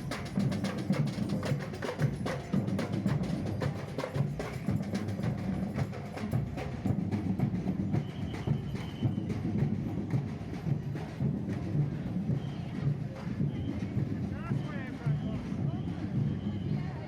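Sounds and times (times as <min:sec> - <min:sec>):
smaller drums striking: 0:00.0 - 0:08.5
wood-block percussion: 0:00.0 - 0:16.4.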